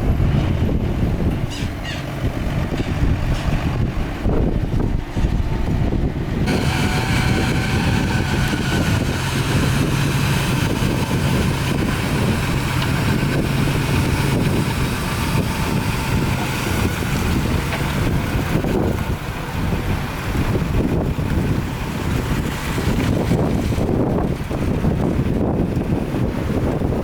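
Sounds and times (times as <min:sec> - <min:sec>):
diesel engine humming: 0:00.0 - 0:27.0
machine whine and clatter: 0:06.4 - 0:25.9.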